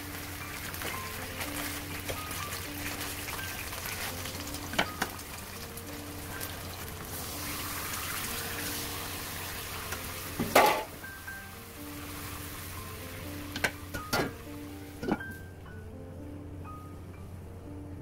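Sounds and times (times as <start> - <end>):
chicken sizzling in oil: 0.0 - 15.1.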